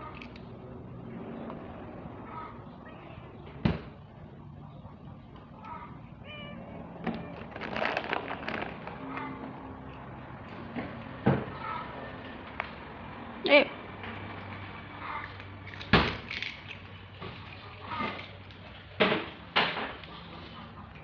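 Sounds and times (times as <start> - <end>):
cats meowing: 2.2 - 3.5, 5.6 - 9.6.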